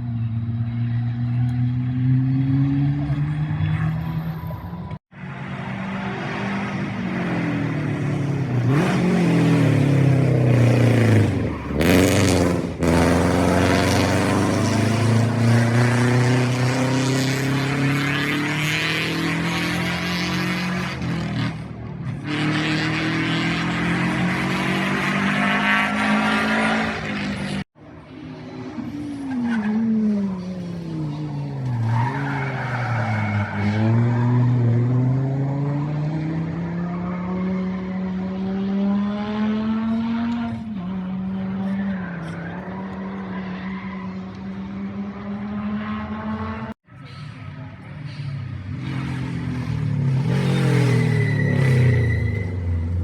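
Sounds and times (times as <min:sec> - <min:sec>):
rally car slowing and accelerating: 0:00.0 - 0:53.0
rally car engine at high revs: 0:05.7 - 0:27.7, 0:28.7 - 0:47.2.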